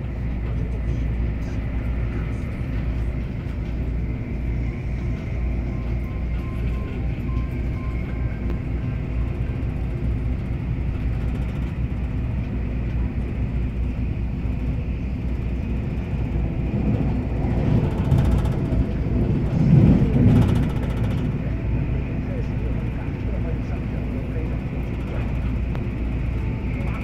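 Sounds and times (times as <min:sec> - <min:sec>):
train rumble inside carriage: 0:00.0 - 0:27.0.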